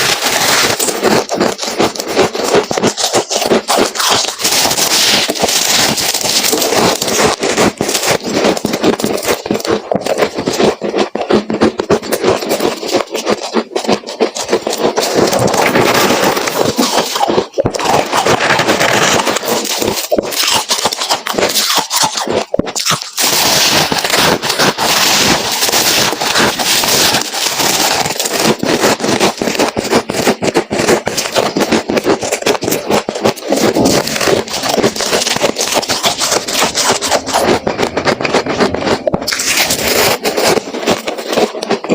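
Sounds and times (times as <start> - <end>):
frost being chewed crunching: 0.0 - 41.9.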